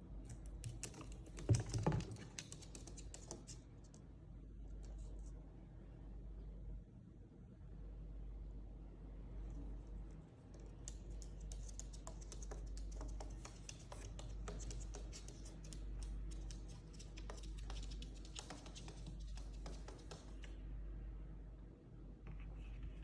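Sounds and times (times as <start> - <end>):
steady low hum: 0.0 - 23.0
bird claws tapping on hard surface: 10.9 - 20.4.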